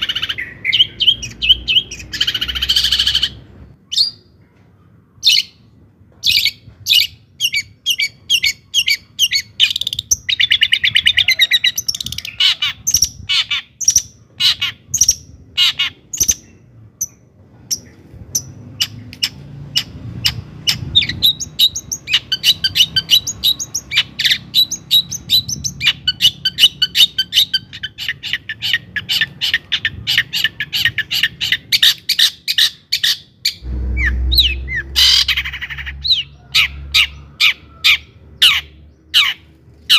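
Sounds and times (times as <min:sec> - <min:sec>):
bird chattering song: 0:00.0 - 0:04.4, 0:06.2 - 0:39.5
low thud: 0:33.6 - 0:35.5.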